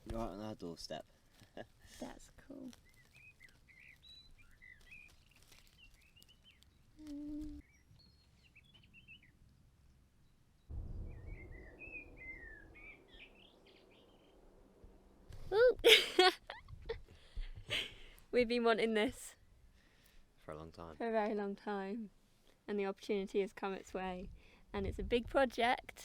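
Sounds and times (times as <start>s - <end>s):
wild birds chirping: 0.6s - 16.3s
low rumble of wind: 6.5s - 18.4s
brief low hum: 10.7s - 15.6s.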